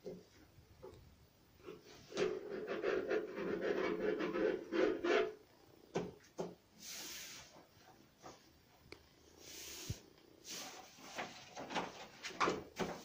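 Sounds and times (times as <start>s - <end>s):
wallpaper rubbing and rustling: 1.7s - 5.4s, 6.8s - 8.8s, 9.4s - 13.0s
short hiss: 6.8s - 7.6s, 9.4s - 11.0s.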